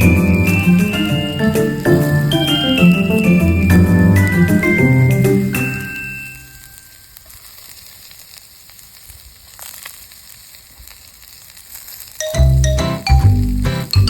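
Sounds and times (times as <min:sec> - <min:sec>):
background music: 0:00.0 - 0:06.6, 0:12.2 - 0:14.0
food sizzling over campfire: 0:00.0 - 0:14.0.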